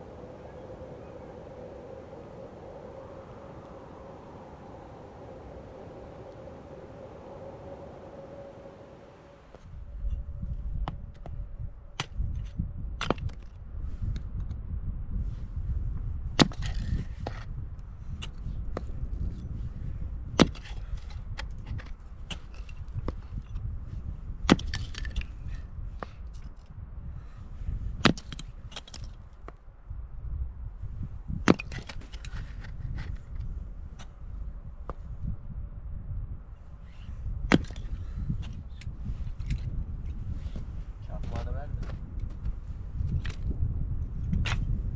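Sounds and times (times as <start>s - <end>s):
low rumble: 0.0s - 13.9s
low fire rumble: 0.0s - 24.5s, 25.2s - 44.9s.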